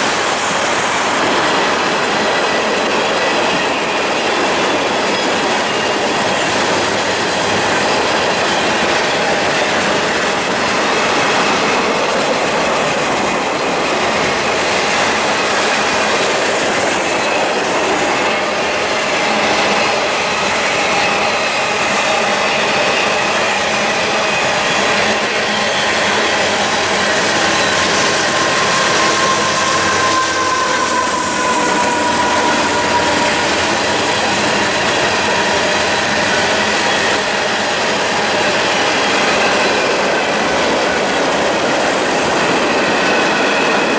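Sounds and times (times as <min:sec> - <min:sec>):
train wheels clattering over rail joints: 0:00.0 - 0:43.9
faint wheel squeal: 0:27.2 - 0:37.1.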